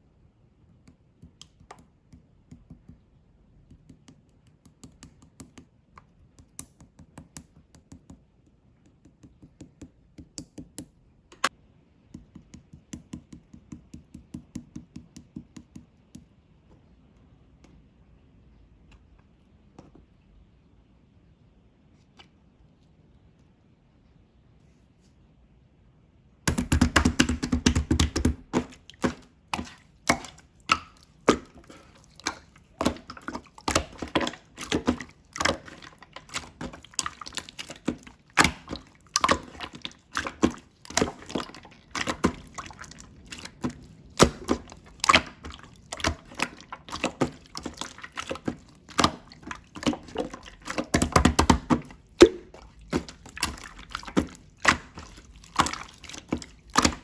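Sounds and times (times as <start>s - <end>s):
slime squelching: 26.5s - 57.0s.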